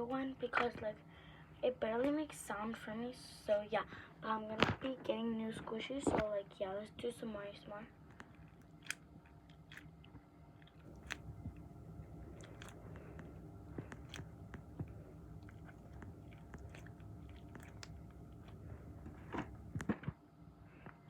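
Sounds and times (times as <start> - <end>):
faint crackles and clicks: 8.0 - 20.2.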